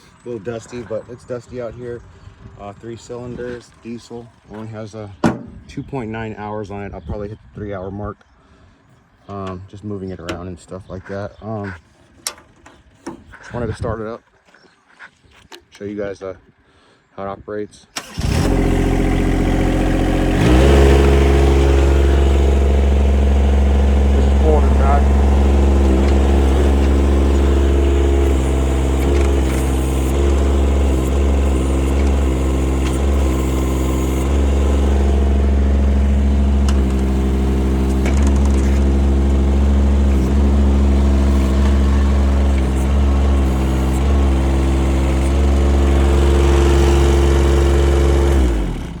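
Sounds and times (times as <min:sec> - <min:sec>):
excavator diesel engine running: 0:18.1 - 0:49.0.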